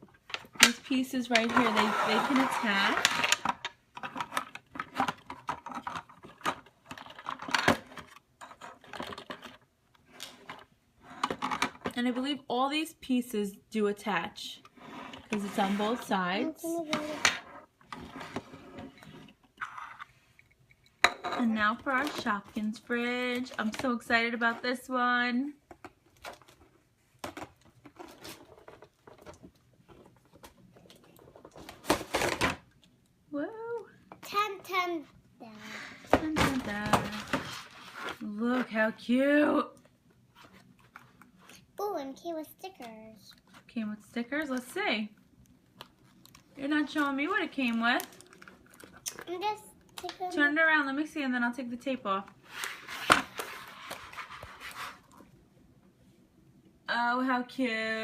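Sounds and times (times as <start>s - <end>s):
toy packaging rustling: 45.7s - 50.4s.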